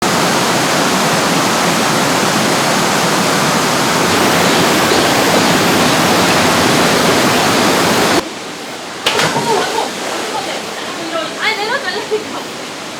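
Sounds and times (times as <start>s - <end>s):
stream rushing over rocks: 0.0s - 12.9s.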